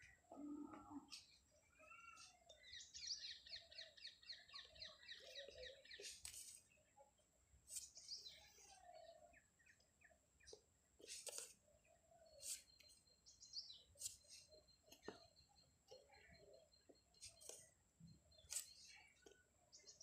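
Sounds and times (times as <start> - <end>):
bird trill of falling chirps: 0.0 - 6.7
lower bird calls: 0.0 - 6.7.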